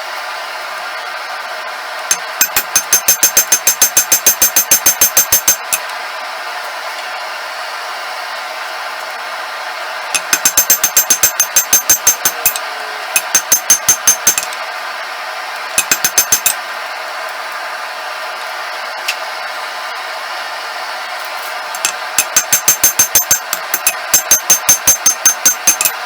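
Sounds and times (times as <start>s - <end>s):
hammer striking steel on anvil: 2.1s - 5.9s, 10.2s - 14.6s, 15.8s - 16.6s, 21.8s - 26.0s.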